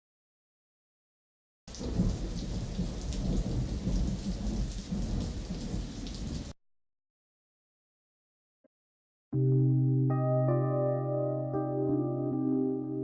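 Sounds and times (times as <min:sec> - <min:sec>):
heavy rain: 0:01.7 - 0:06.6
low rumble of thunder: 0:01.8 - 0:06.5.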